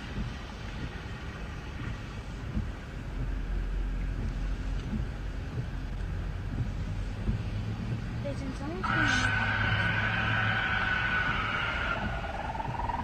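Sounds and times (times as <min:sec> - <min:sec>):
steady low rumble: 0:00.0 - 0:13.0
wind buffeting microphone: 0:00.0 - 0:13.0.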